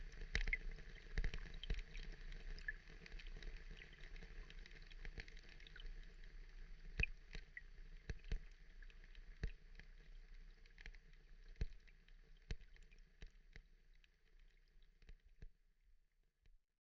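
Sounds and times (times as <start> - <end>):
water drips and clicks: 0.0 - 15.5.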